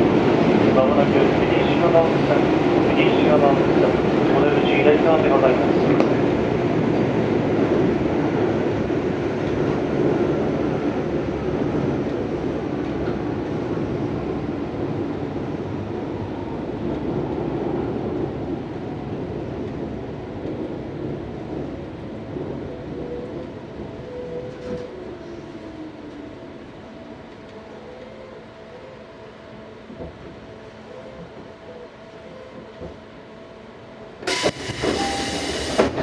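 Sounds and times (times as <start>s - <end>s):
electric train running: 34.2s - 36.0s
faint pitched braking tones: 34.3s - 36.0s.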